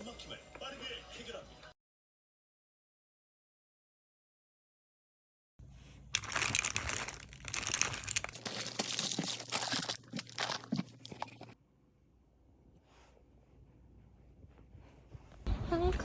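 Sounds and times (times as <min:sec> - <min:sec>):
plastic packaging crinkling: 0:06.0 - 0:11.6.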